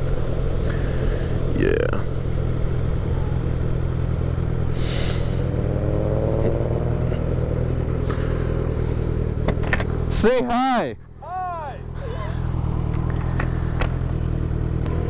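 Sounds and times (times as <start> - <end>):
motorcycle engine accelerating: 0.0 - 15.0
wind and road noise: 0.0 - 15.0
brief hiss: 4.8 - 5.5.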